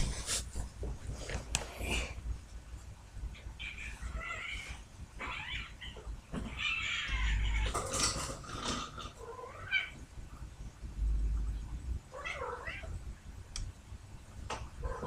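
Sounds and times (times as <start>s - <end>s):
cats yowling: 3.4s - 8.2s, 8.8s - 10.0s, 12.1s - 13.0s, 14.8s - 15.0s.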